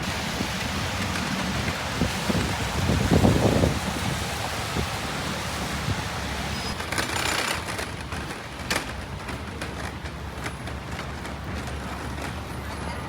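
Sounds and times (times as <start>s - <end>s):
passing vehicles hiss: 0.0s - 9.3s.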